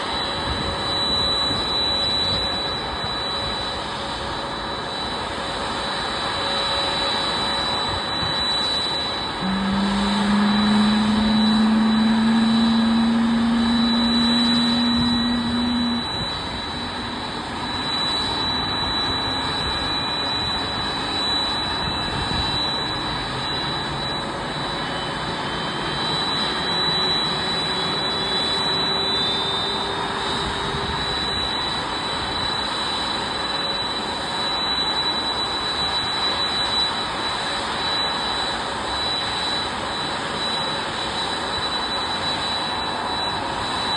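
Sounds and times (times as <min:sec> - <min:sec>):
jet engine starting up: 0:00.0 - 0:43.9
strong low hum: 0:09.4 - 0:17.8.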